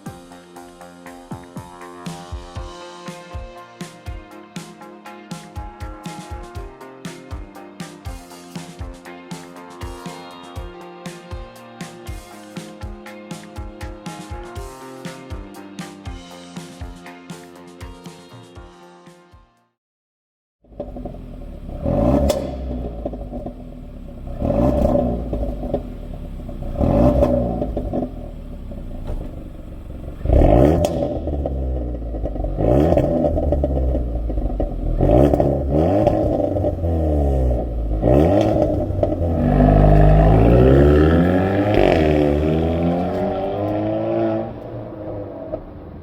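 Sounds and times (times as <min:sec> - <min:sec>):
car engine revving: 0:20.7 - 0:46.0.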